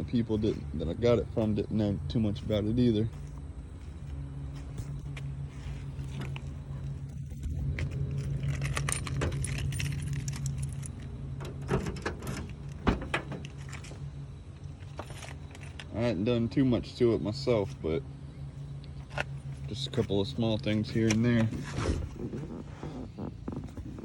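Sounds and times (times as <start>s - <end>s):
steady low hum: 0.0s - 24.0s
keys jangling: 7.8s - 14.0s.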